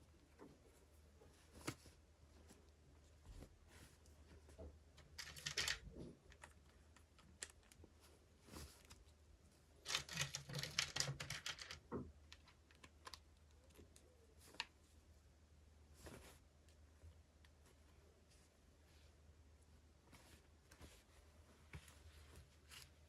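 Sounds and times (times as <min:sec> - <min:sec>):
plastic packaging clicking and crinkling: 0:05.0 - 0:08.0, 0:09.8 - 0:14.7.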